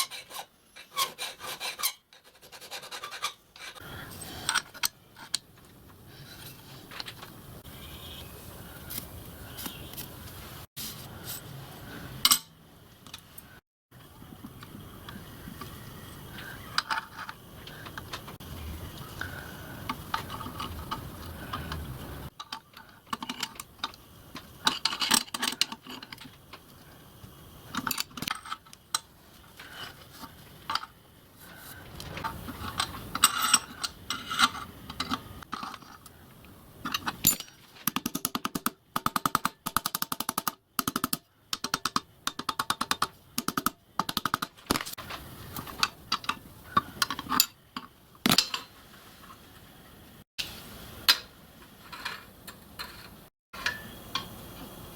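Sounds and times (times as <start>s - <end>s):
clicks and taps of steel tools: 36.9s - 44.6s, 53.6s - 54.4s.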